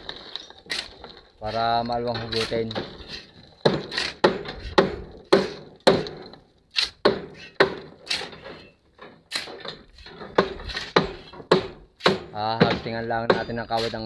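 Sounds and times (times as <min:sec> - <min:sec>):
hammer knocking on wood: 0:03.6 - 0:06.3, 0:07.0 - 0:08.0, 0:10.2 - 0:13.6.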